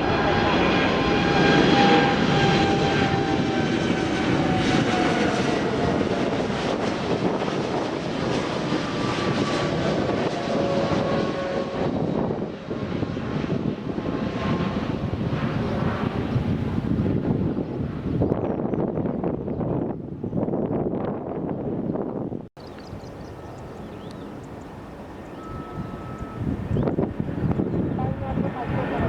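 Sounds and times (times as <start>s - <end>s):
airliner engines roaring: 0.0s - 29.0s.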